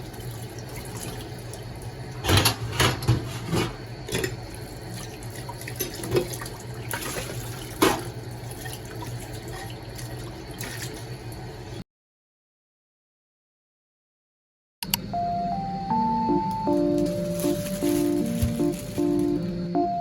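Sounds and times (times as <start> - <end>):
tap water running into sink: 0.0 - 11.7.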